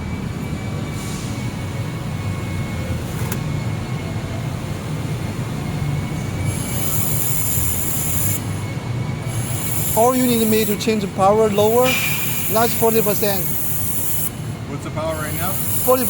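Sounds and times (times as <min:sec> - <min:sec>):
laser welder humming: 0:02.3 - 0:16.0
high hiss: 0:09.3 - 0:14.5, 0:15.2 - 0:16.0.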